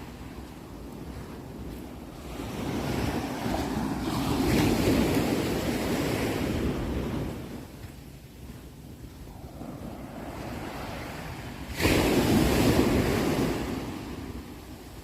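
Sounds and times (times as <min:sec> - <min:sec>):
sea wave washing on shore: 0:09.3 - 0:14.4.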